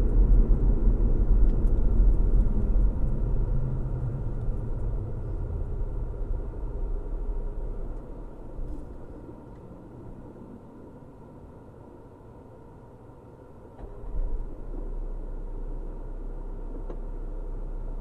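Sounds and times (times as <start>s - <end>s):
car driving: 0.0s - 11.0s.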